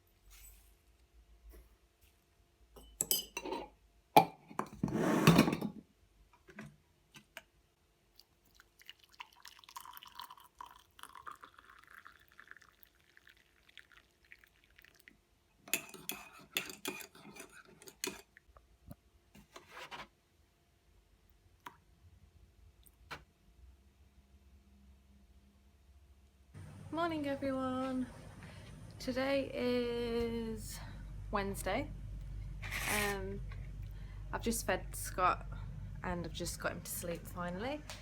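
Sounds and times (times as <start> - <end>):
dishes and glass clinking: 2.8 - 5.8, 15.7 - 18.3
liquid running: 8.5 - 15.1.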